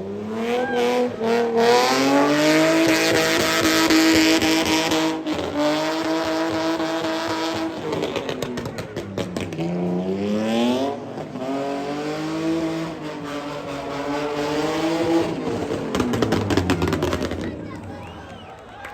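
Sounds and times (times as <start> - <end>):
car engine revving high: 0.0 - 17.9.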